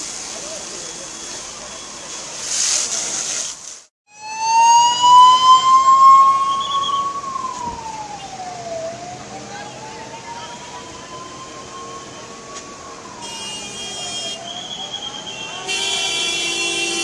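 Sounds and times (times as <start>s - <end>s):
rushing hiss: 0.0s - 3.9s
emergency vehicle siren wailing: 4.1s - 16.2s.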